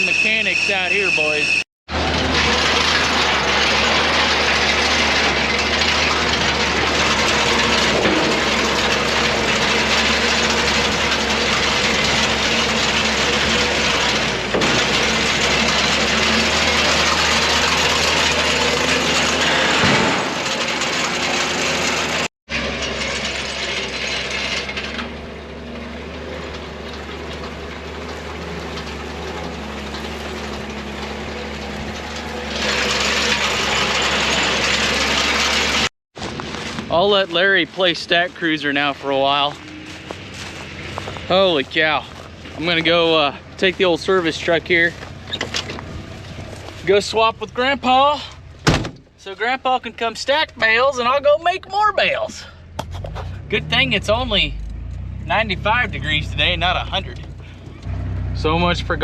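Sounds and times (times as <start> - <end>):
clatter of gears and chains: 0.0 - 35.9, 36.9 - 48.6
engine hum: 0.0 - 59.0.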